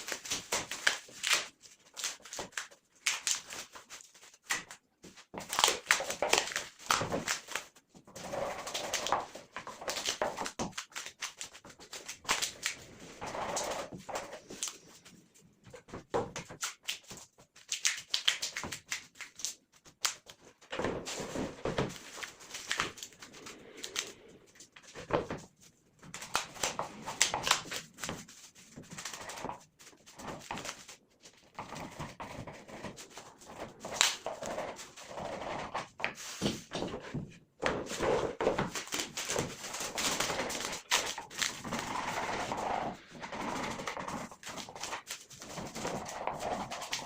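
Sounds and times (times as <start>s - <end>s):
scraping on wood: 31.6s - 47.0s.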